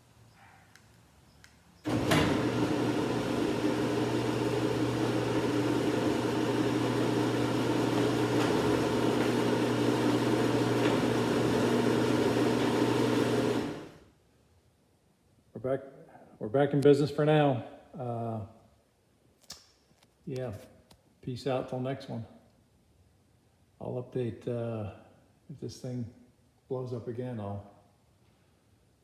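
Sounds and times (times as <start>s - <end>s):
garage door opener motor hum: 1.8s - 14.1s.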